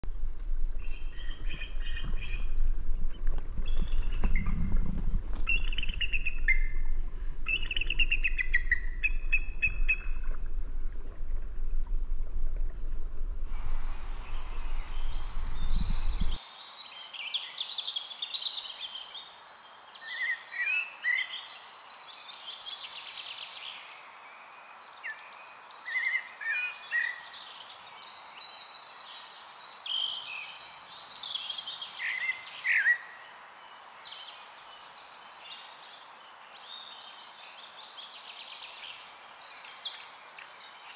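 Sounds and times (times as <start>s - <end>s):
heavy low rumble: 0.0s - 16.4s
steady outdoor hiss: 0.0s - 40.9s
birds chirping and singing: 0.7s - 11.1s, 11.9s - 16.4s.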